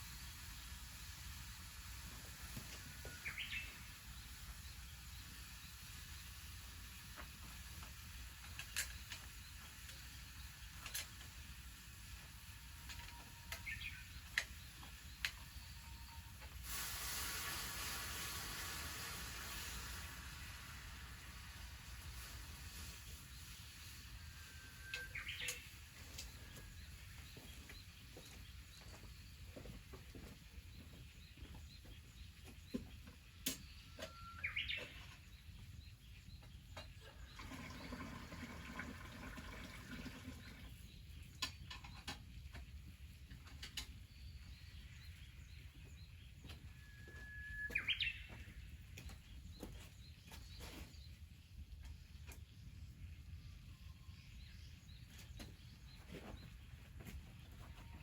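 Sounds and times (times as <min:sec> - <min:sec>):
songbird whistled call: 0:24.3 - 0:27.5, 0:33.5 - 0:35.2, 0:46.4 - 0:48.6.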